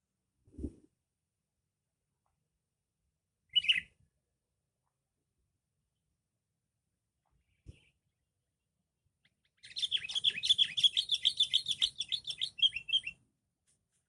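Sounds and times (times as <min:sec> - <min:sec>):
bird rapid high chirps: 0:03.5 - 0:04.0, 0:09.4 - 0:13.2.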